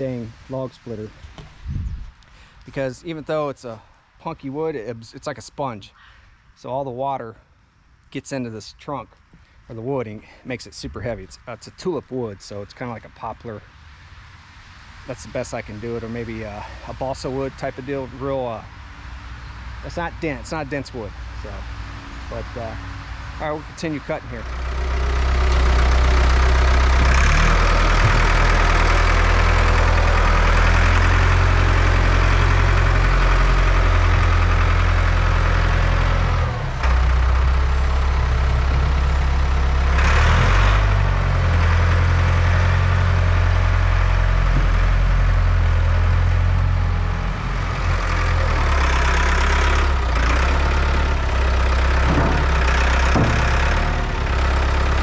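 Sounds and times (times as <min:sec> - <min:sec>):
chainsaw engine running: 0:24.3 - 0:46.8, 0:47.5 - 0:55.0.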